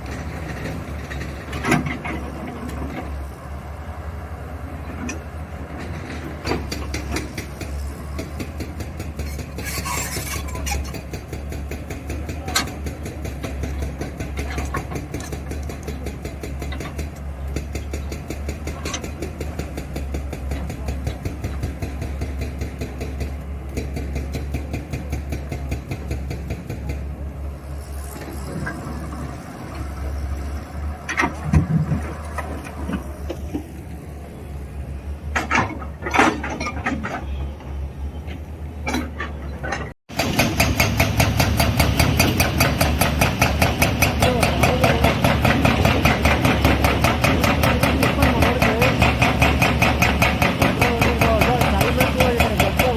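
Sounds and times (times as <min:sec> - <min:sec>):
digger diesel engine clattering: 0:00.0 - 0:52.9.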